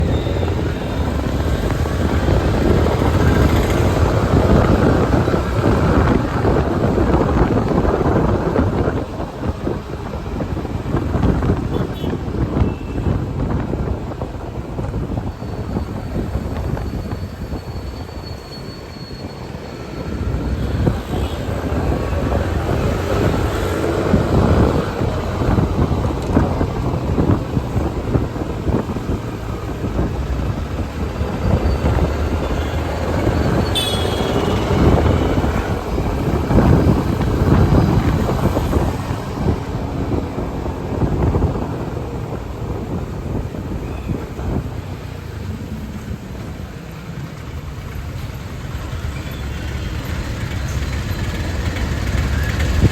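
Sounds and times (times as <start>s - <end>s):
wind buffeting microphone: 0.0s - 18.4s, 19.3s - 52.9s.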